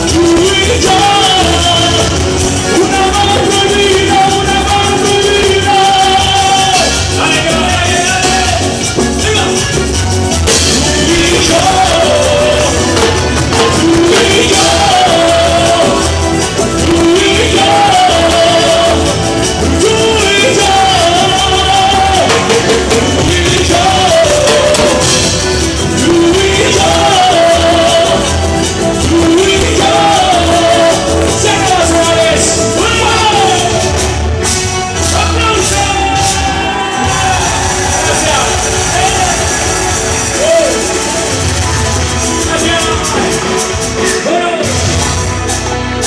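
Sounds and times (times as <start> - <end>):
band playing: 0.0 - 46.0
person singing: 0.0 - 46.0.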